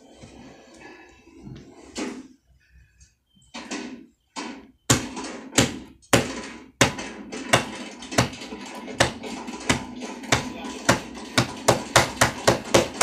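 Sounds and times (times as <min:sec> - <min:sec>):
heavy evenly spaced thumps: 0:04.4 - 0:13.0.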